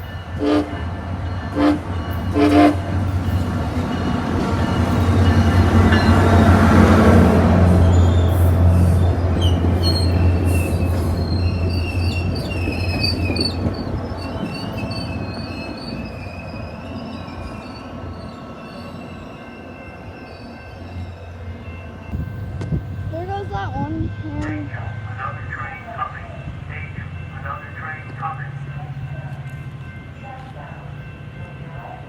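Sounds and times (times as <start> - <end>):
train wheels squealing on rails: 0.0 - 6.9, 7.7 - 23.1
train rumble: 0.0 - 32.0.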